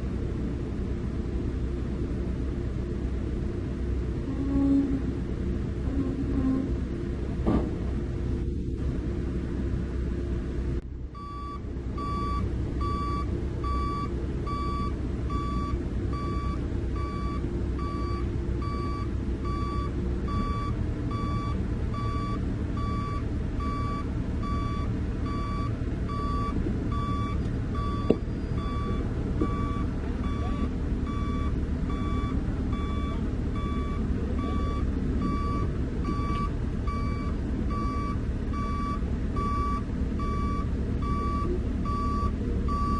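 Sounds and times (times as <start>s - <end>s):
diesel engine running: 0.0s - 42.9s
reversing alarm beeping: 11.2s - 42.9s.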